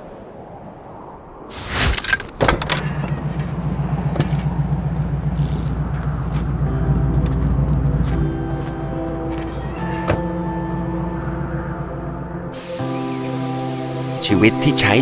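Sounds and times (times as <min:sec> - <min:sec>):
car engine idling: 0:02.6 - 0:13.9
sustained music notes: 0:03.0 - 0:15.0.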